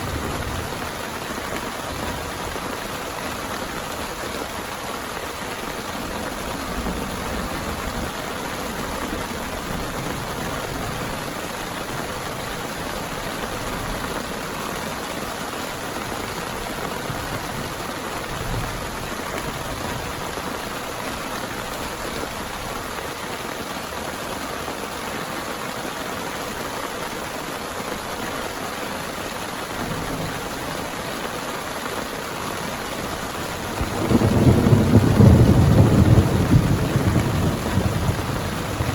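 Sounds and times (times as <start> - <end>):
heavy rain falling: 0.0 - 38.9
thunder rumble: 33.5 - 38.9.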